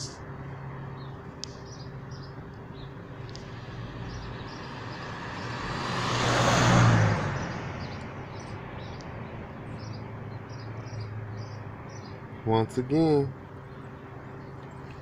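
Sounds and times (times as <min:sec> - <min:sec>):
vehicle passing by: 0:03.2 - 0:12.8.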